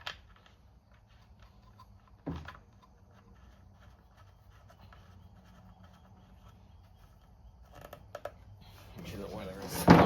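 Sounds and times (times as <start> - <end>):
hands scratching and rubbing: 2.8 - 8.0.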